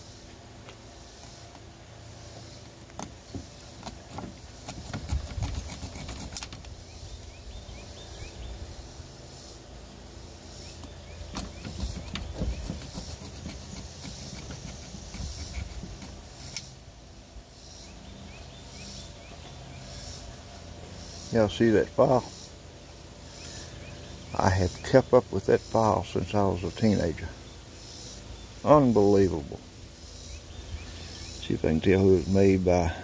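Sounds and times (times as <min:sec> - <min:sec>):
file scraping metal contacts: 0:02.6 - 0:06.8, 0:11.3 - 0:16.7.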